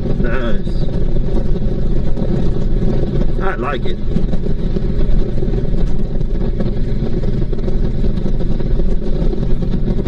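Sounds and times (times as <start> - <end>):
motorcycle engine cruising: 0.0 - 10.0
rushing wind noise: 0.0 - 10.0.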